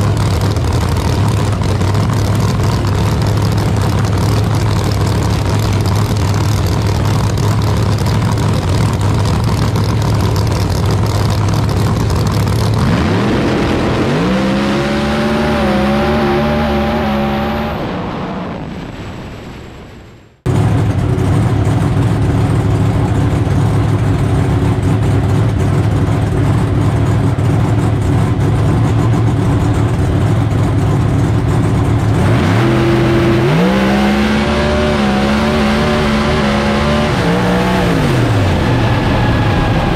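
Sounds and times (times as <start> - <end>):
drag race car engines: 0.0 - 19.9, 20.5 - 39.9
cars accelerating hard: 12.2 - 18.7, 32.1 - 39.9.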